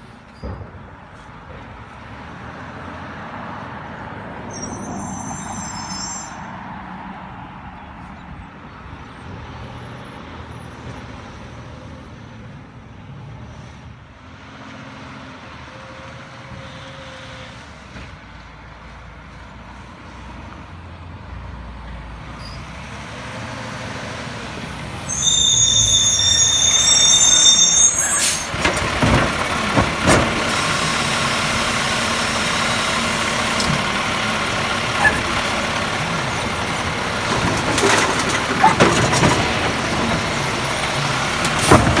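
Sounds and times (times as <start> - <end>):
garbage truck running: 4.4 - 6.5, 23.4 - 42.0
high brake squeal: 4.4 - 6.8, 22.4 - 22.8, 24.9 - 42.0
sharp clunks and bangs: 28.2 - 34.1, 35.0 - 42.0.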